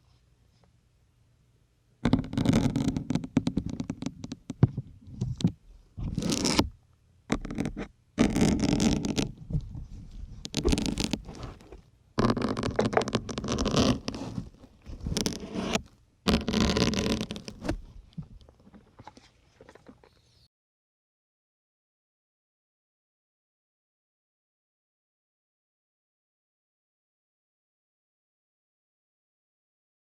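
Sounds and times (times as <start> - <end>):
needles scraping in foam sponge: 6.0 - 6.6, 7.6 - 17.9.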